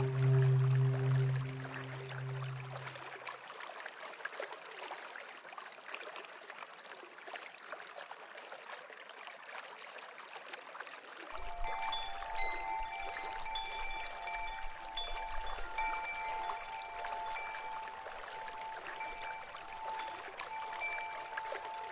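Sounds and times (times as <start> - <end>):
soft music tones: 0.0 - 3.0, 11.4 - 21.9
stream water trickling: 0.0 - 21.9.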